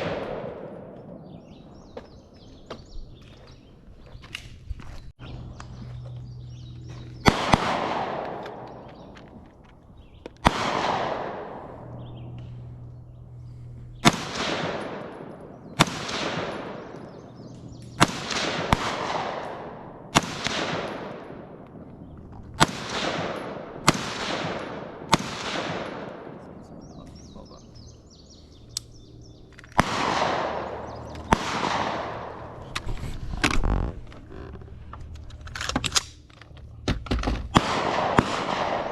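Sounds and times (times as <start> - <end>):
rifle gunshots with echo: 0.0 - 2.3, 7.2 - 9.3, 10.4 - 32.7, 37.5 - 38.9.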